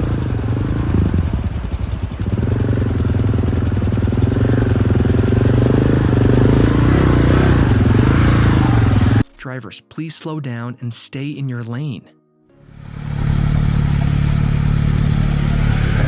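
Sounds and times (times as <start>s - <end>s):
motorcycle engine revving: 0.0s - 9.2s, 12.7s - 16.0s.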